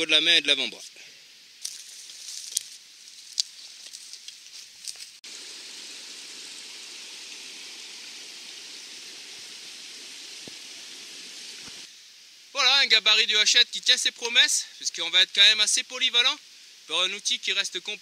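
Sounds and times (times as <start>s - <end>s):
footsteps through undergrowth: 1.6s - 5.9s.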